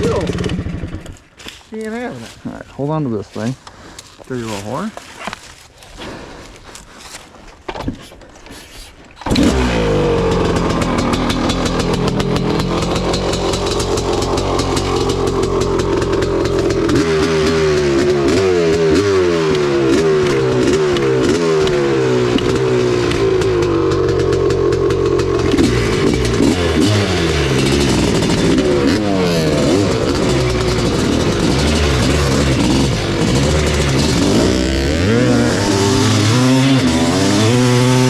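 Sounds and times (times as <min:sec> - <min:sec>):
motorcycle engine revving: 0:00.0 - 0:01.4, 0:09.2 - 0:38.0.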